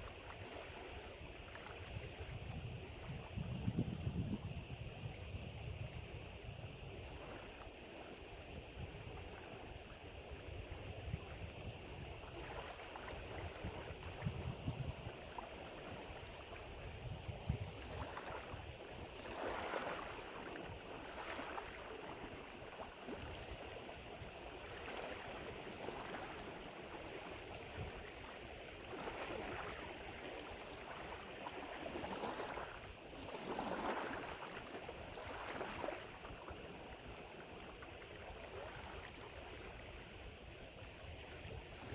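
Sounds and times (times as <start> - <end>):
small waves lapping at shore: 0.0 - 41.9
wind buffeting microphone: 1.3 - 7.3, 10.4 - 19.5.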